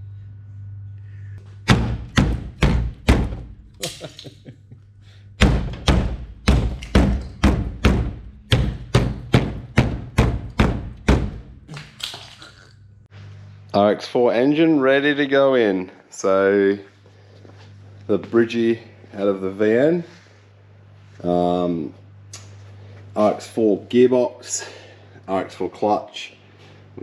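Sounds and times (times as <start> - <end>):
heavy thumps: 1.6 - 3.8, 5.4 - 11.7.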